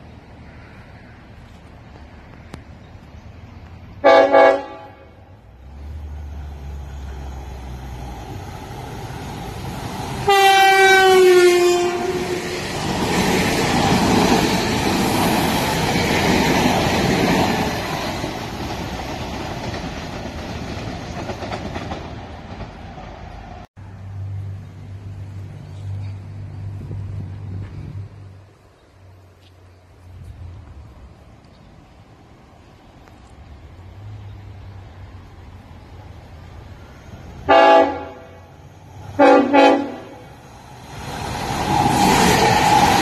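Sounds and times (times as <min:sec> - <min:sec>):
train wheels rumbling on rails: 0:00.8 - 0:43.0
train horn: 0:04.0 - 0:05.4, 0:10.2 - 0:12.6, 0:37.5 - 0:38.5, 0:39.2 - 0:40.3.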